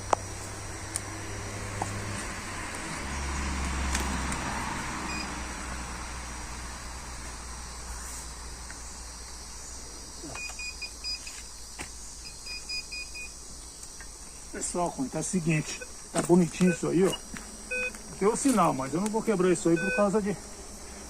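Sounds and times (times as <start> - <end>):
metal detector high beeps: 12.2 - 13.3, 16.6 - 18.0, 19.7 - 20.2.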